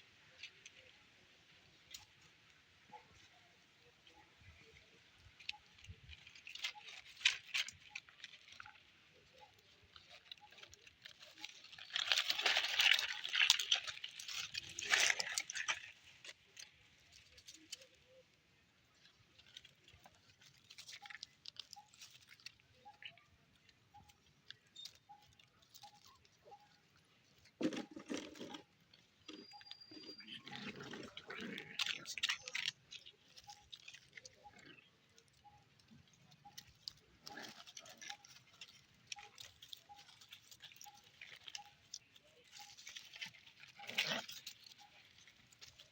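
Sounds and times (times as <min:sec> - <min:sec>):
puppies rustling: 0:19.0 - 0:45.9.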